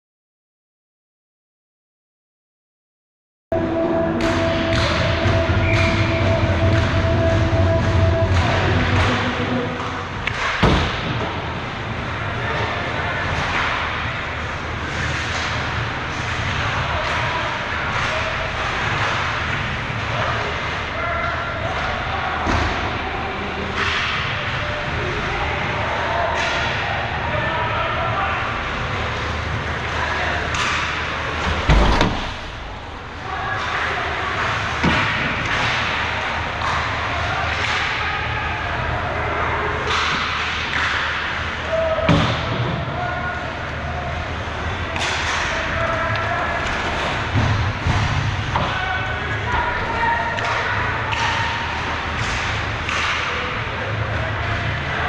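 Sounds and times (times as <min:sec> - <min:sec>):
crowd chatter: 0:03.5 - 0:55.0
slam against rink boards: 0:34.8 - 0:36.0, 0:42.0 - 0:42.8.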